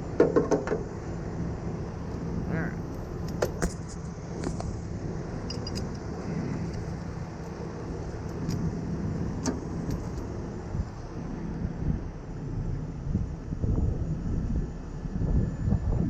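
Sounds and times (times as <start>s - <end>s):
truck engine idling: 0.0s - 15.6s.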